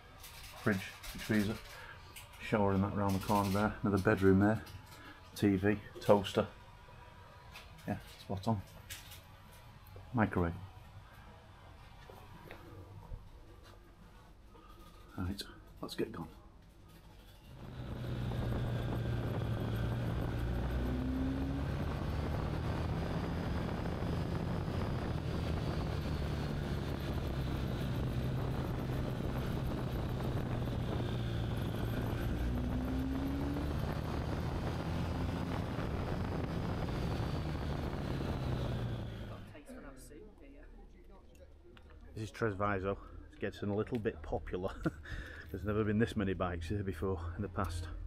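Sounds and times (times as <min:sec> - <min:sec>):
motorcycle engine cruising: 0:17.4 - 0:39.6
wind and road noise: 0:17.4 - 0:39.6.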